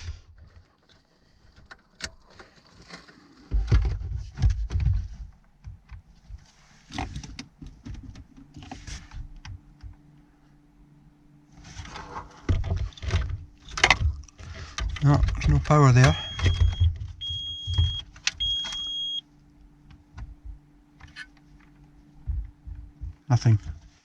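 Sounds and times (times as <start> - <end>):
low thumps: 22.2 - 23.8.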